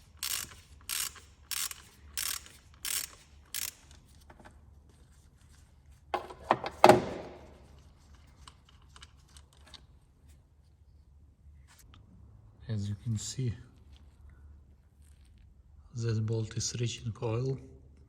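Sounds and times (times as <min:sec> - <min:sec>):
ratchet wrench strokes: 0:00.0 - 0:04.0.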